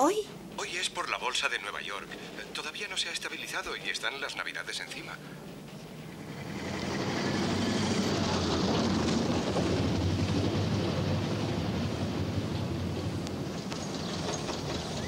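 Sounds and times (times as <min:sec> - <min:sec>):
car engine rattling: 0:06.2 - 0:15.0.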